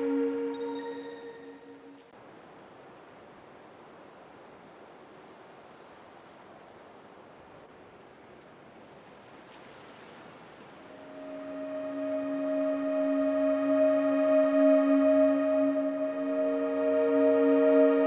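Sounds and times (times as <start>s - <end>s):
music: 0.0s - 2.0s, 11.0s - 18.0s
sea surf rushing: 10.9s - 18.0s.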